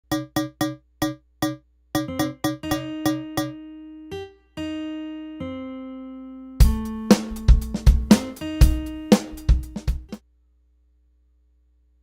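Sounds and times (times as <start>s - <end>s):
electric piano notes: 2.0s - 10.2s.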